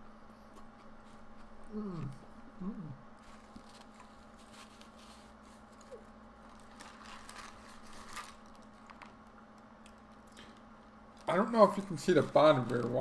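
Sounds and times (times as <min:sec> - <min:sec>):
steady low hum: 0:00.0 - 0:13.0
sandwich wrapper rustling: 0:03.2 - 0:10.2, 0:11.1 - 0:13.0.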